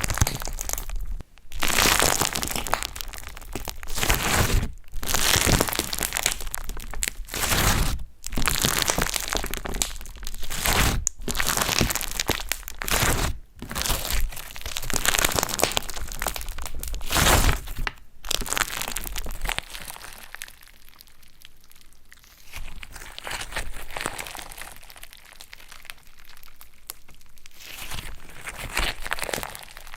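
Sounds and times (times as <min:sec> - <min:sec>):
slime crackling and crunching: 0:00.0 - 0:29.9.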